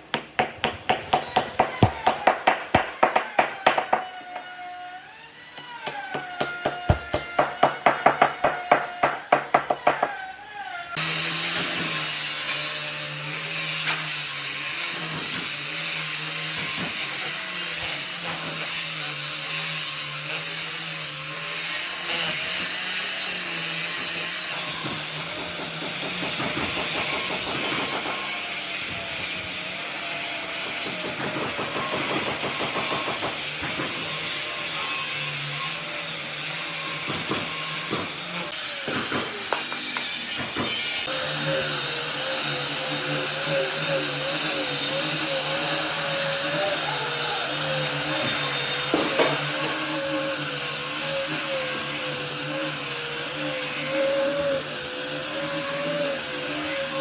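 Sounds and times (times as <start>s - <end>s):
electric power tool running: 25.2s - 52.6s.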